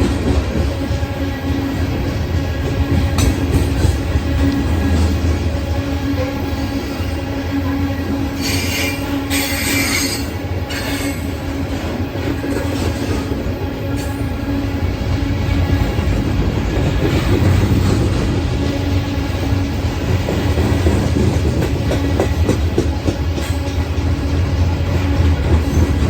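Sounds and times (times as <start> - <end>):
train wheels squealing: 7.8 - 11.4.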